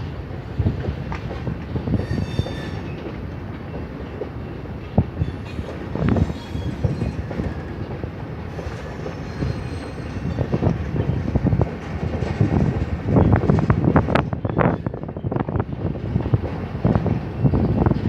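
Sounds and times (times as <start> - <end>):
train wheels rumbling on rails: 0.0 - 18.0
high wheel squeal: 2.0 - 3.0, 5.2 - 7.8, 8.5 - 10.6.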